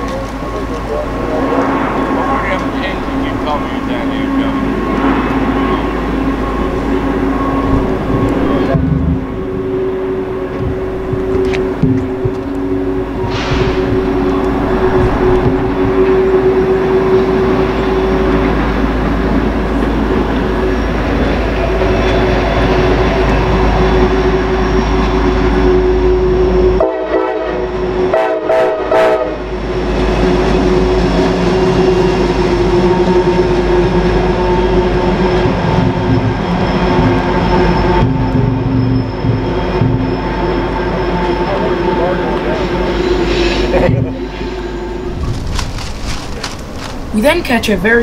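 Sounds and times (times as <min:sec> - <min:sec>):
continuous whine: 0:00.0 - 0:28.3, 0:29.4 - 0:48.0
diesel train rumbling past: 0:00.0 - 0:48.0
locomotive horn blasts: 0:24.2 - 0:29.6.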